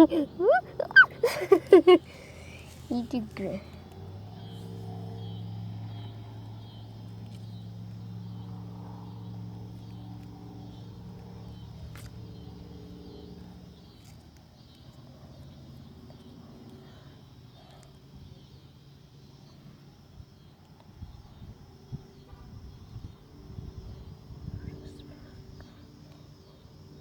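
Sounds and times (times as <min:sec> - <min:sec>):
engine hum: 0:00.0 - 0:20.0.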